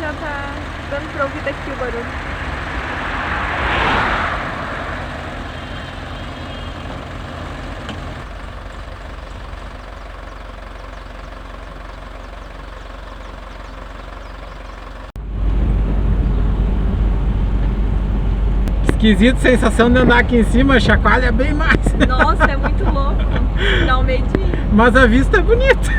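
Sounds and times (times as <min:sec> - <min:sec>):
van engine with knocking bearing: 0:00.0 - 0:03.8, 0:04.5 - 0:25.9
steady low rumble: 0:08.1 - 0:25.9.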